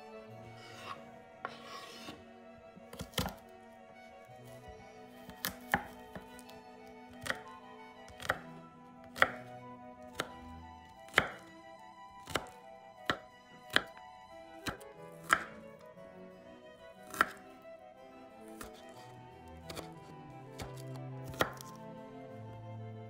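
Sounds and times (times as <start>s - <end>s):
soft background music: 0.0s - 23.0s
knife chopping on cutting board: 0.6s - 2.2s, 2.9s - 3.4s, 5.2s - 6.5s, 7.1s - 7.5s, 8.1s - 9.4s, 10.1s - 10.4s, 11.1s - 11.4s, 12.2s - 14.0s, 14.6s - 15.6s, 17.0s - 17.4s, 19.7s - 19.9s, 20.6s - 21.7s.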